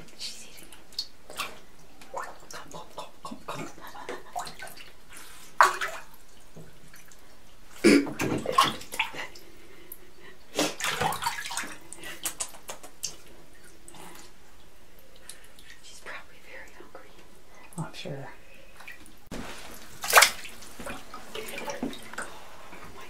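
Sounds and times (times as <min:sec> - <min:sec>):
water splashing in a tub: 0:00.0 - 0:09.5, 0:10.5 - 0:14.0, 0:18.8 - 0:23.0.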